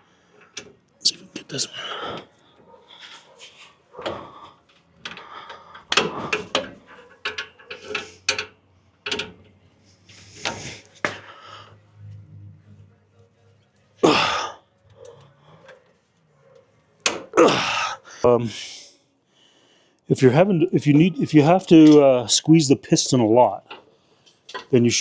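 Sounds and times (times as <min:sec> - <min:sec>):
metal parts clanking: 0:00.3 - 0:11.2, 0:21.6 - 0:22.2, 0:23.0 - 0:25.0.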